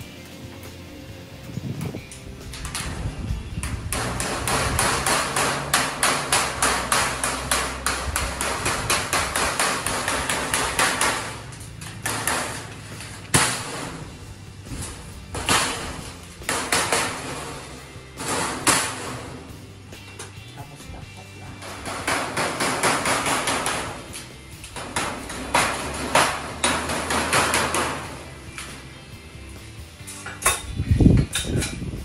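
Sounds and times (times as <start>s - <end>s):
hammer striking metal sheet: 3.6s - 19.5s, 21.5s - 28.8s.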